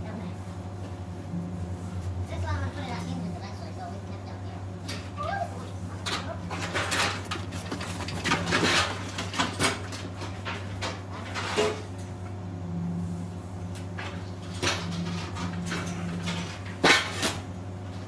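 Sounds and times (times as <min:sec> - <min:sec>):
steady low hum: 0:00.0 - 0:18.0
metal gate panels clanking: 0:04.8 - 0:11.9.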